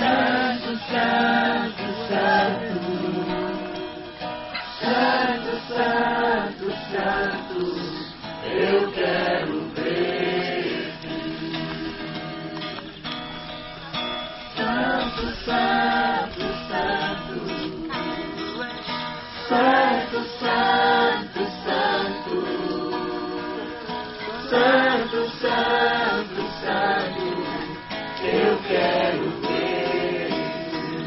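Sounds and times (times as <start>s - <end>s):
strummed acoustic guitar: 0.0s - 31.0s
person singing: 14.6s - 18.8s, 19.5s - 31.0s.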